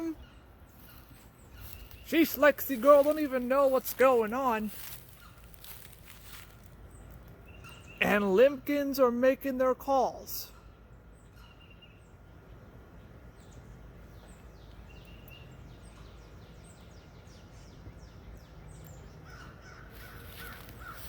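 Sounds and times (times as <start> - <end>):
birds giving high falling calls: 0.0 - 21.0
distant crows cawing: 19.1 - 21.0.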